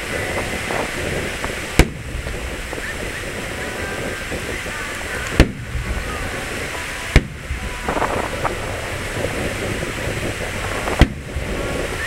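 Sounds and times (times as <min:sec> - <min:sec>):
background hiss: 0:00.0 - 0:12.0
firework boom: 0:00.0 - 0:12.0
firework crackles: 0:00.0 - 0:12.0.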